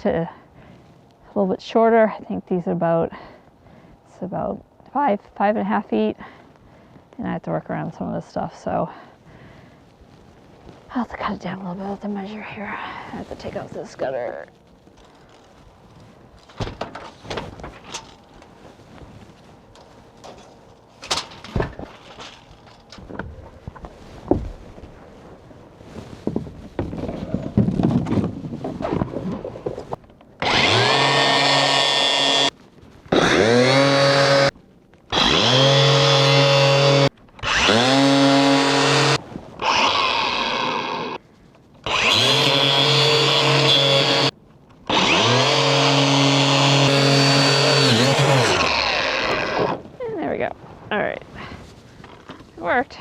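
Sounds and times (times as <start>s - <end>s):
handling clatter: 13.4s - 25.3s
power tool motor spinning up: 30.4s - 32.5s, 33.1s - 34.5s, 35.1s - 41.2s, 41.8s - 44.3s, 44.9s - 49.8s.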